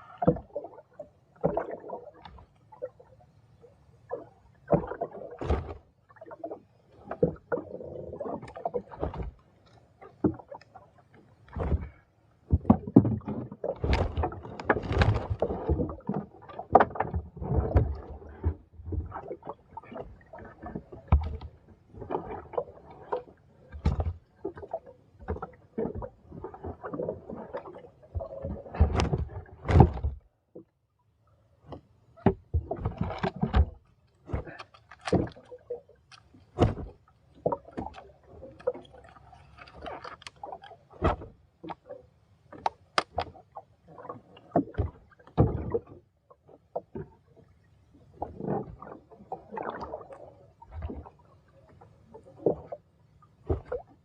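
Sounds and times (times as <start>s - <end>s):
water splashing and sloshing: 0.0s - 54.0s
knocks against a boat: 28.8s - 30.3s, 31.7s - 35.4s, 36.6s - 38.0s.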